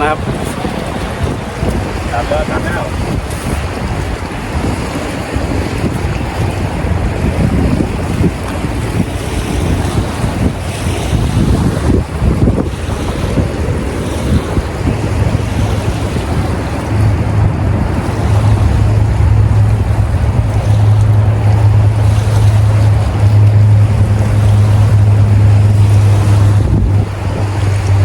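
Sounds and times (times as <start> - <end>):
wind buffeting microphone: 0.0 - 28.0
steady low hum: 16.5 - 28.0.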